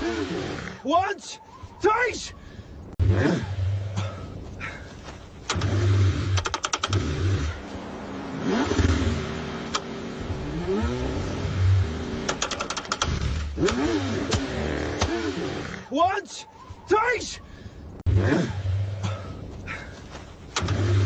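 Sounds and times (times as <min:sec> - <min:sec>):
car engine cranking: 0:05.4 - 0:07.7, 0:08.3 - 0:15.8, 0:20.4 - 0:21.0
rapid clicking: 0:05.5 - 0:07.1, 0:12.2 - 0:13.8.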